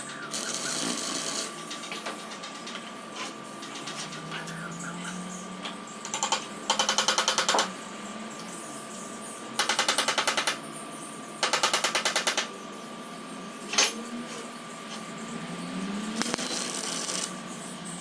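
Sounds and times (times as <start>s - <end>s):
steady high hum: 0.0s - 18.0s
power tool hammering on metal: 0.3s - 2.8s, 6.0s - 7.8s, 9.6s - 10.6s, 11.4s - 12.5s, 16.2s - 17.4s.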